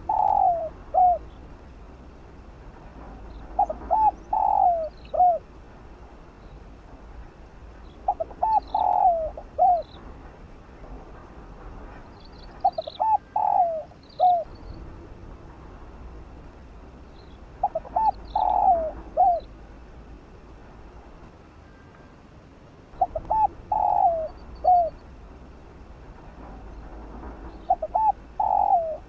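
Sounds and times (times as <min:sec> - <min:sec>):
dove cooing: 0:00.0 - 0:01.4, 0:03.4 - 0:05.5, 0:08.0 - 0:10.1, 0:12.5 - 0:14.6, 0:17.5 - 0:19.6, 0:23.0 - 0:25.2, 0:27.5 - 0:29.0
faint high bird chirps: 0:07.8 - 0:10.0, 0:17.1 - 0:19.6, 0:23.0 - 0:25.1.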